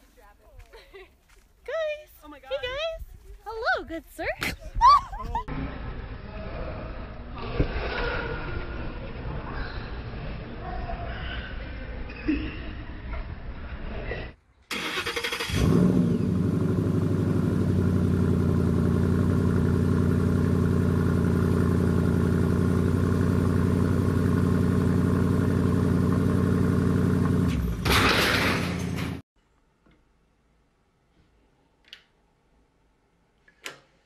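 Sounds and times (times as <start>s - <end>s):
car engine starting and idling: 14.7s - 29.2s.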